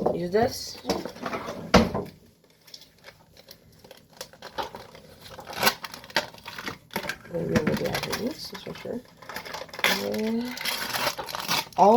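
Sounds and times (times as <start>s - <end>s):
faint scraping and rustling: 0.6s - 11.9s.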